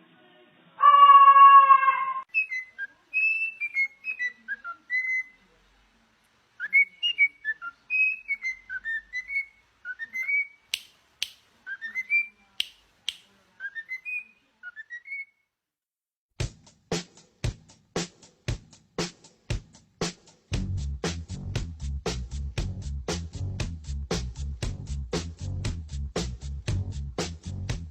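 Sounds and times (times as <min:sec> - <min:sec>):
parrot whistling: 0:00.8 - 0:05.4, 0:06.6 - 0:10.6, 0:11.7 - 0:12.4, 0:13.6 - 0:15.3
sharp clicks: 0:10.7 - 0:11.5.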